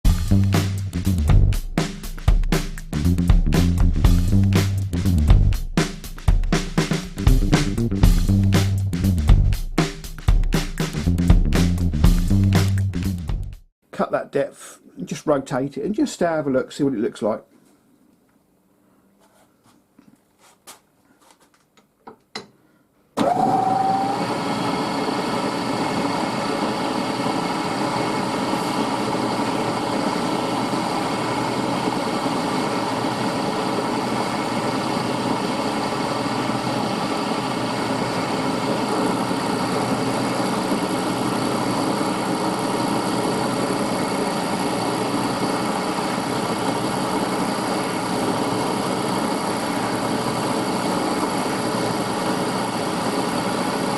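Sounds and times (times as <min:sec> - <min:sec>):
milling machine running: 0:23.2 - 0:53.9.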